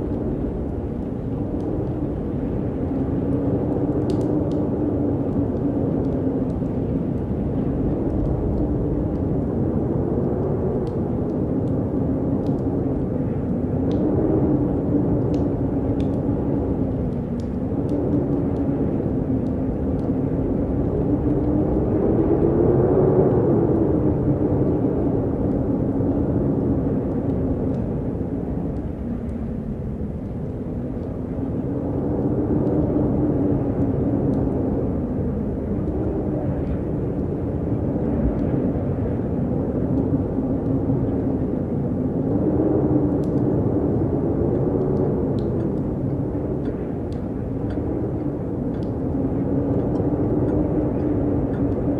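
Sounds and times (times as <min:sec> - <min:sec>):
strong wind howling: 0:00.0 - 0:51.9
faint ticks: 0:04.0 - 0:04.7, 0:15.2 - 0:16.3, 0:16.9 - 0:20.2, 0:46.6 - 0:49.0.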